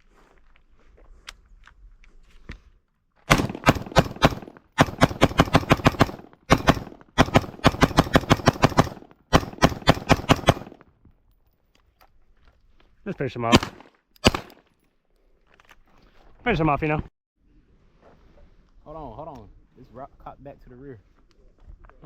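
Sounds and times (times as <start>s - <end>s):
rapid gunfire: 3.3s - 10.8s, 13.5s - 14.6s.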